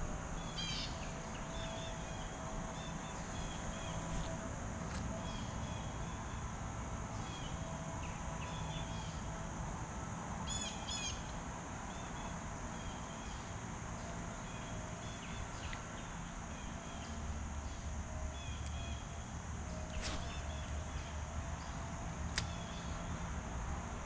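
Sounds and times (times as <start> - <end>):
high-pitched hiss: 20.0 - 20.9.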